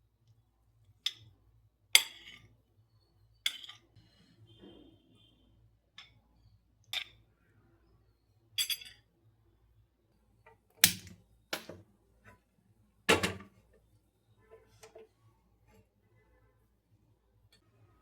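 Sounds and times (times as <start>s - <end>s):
household objects knocking: 13.1s - 13.5s.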